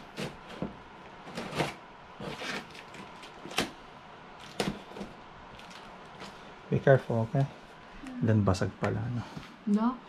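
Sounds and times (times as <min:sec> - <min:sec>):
packaging scraping and rustling: 0:00.0 - 0:03.8, 0:04.4 - 0:06.4.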